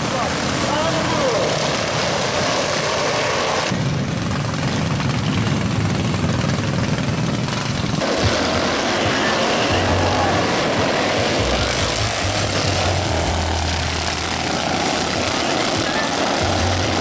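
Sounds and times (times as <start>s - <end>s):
racing lawn mower engines: 0.0s - 17.0s.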